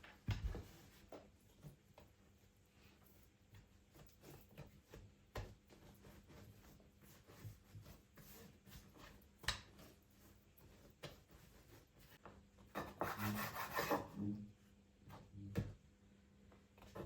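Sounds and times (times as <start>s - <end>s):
rubbing on hard surface: 2.7s - 12.2s, 12.8s - 14.2s.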